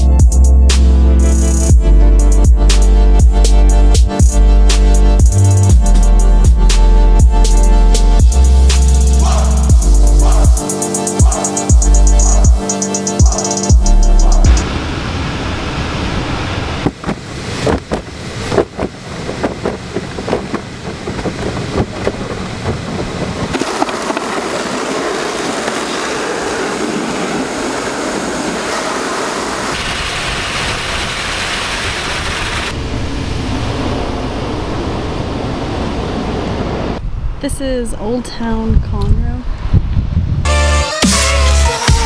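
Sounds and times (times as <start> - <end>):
irregular knocks and clicks: 17.0 - 24.2.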